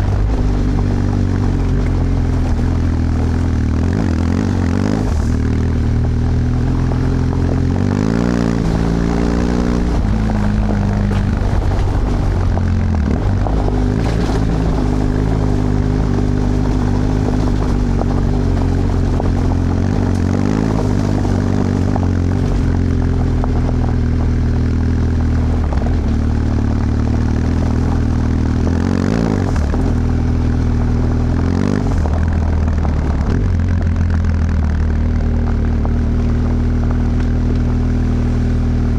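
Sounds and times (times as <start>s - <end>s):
motorcycle engine while riding: 0.0s - 38.9s.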